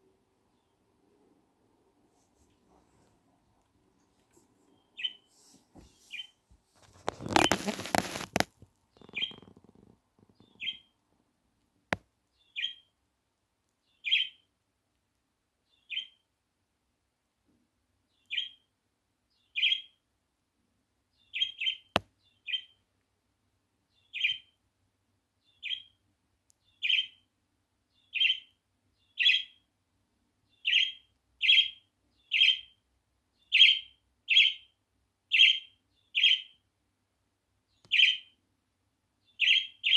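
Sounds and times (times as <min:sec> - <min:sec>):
bird chirping: 0:00.4 - 0:01.0, 0:04.3 - 0:06.4, 0:07.0 - 0:11.0, 0:12.3 - 0:13.0, 0:13.8 - 0:14.5, 0:15.6 - 0:16.3, 0:18.1 - 0:18.7, 0:19.3 - 0:20.0, 0:21.1 - 0:22.8, 0:23.9 - 0:24.6, 0:25.4 - 0:26.0, 0:26.6 - 0:27.3, 0:27.9 - 0:29.7, 0:30.4 - 0:36.7, 0:37.7 - 0:38.4, 0:39.2 - 0:39.9.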